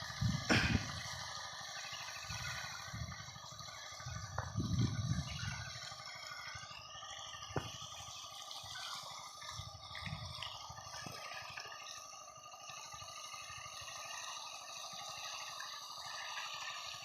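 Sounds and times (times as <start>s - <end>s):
water running and splashing: 0.0s - 12.2s.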